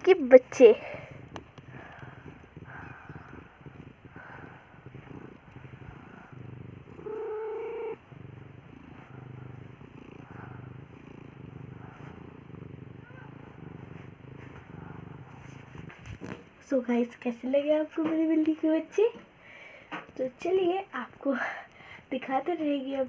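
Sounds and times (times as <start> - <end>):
cat purring: 0.0 - 23.0.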